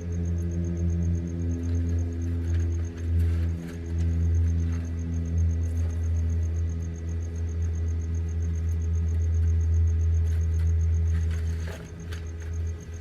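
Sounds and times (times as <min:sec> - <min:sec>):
welder electrical hum: 0:00.0 - 0:13.0.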